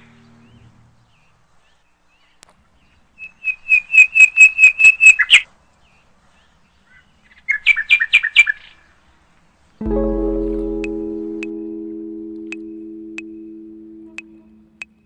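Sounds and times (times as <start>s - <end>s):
songbird chirping: 9.8s - 15.0s.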